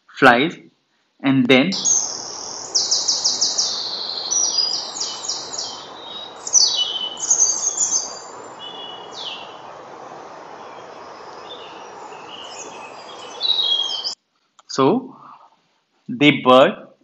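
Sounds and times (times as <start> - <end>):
faint outdoor hiss: 0.0 - 17.0
songbirds twittering: 1.7 - 14.2.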